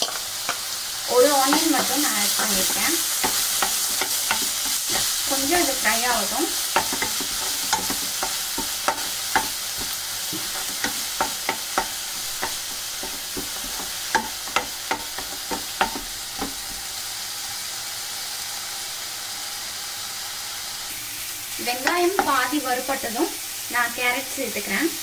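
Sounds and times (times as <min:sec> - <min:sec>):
onion sizzling in hot oil: 0:00.0 - 0:25.0
wooden spatula scraping pan: 0:01.3 - 0:16.8.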